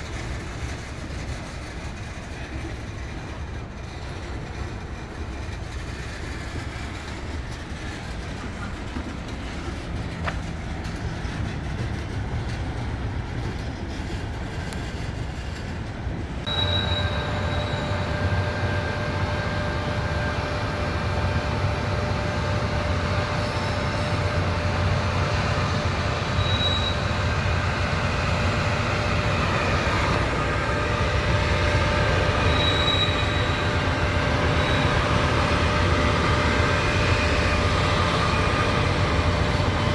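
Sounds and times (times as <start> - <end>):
train rolling along rails: 0.0 - 39.9
high wheel squeal: 16.4 - 39.9.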